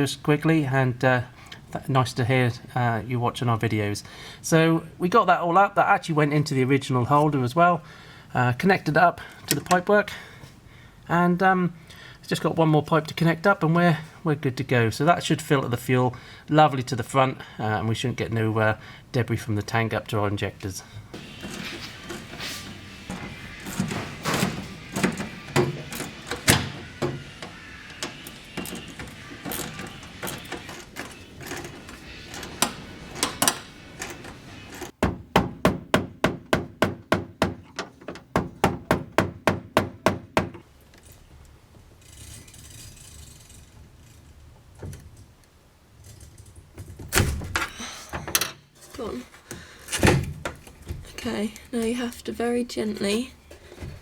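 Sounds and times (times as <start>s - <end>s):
hand tool clatter and knocks: 21.2s - 35.0s
rapid sharp knocks: 35.0s - 37.7s, 38.3s - 40.6s.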